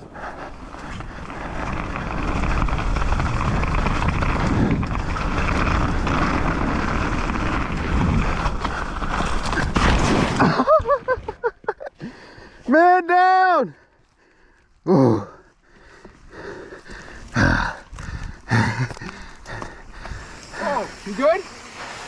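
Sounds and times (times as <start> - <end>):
mountain bike on rough trail: 0.0 - 22.0
wind rushing over microphone: 0.8 - 9.7.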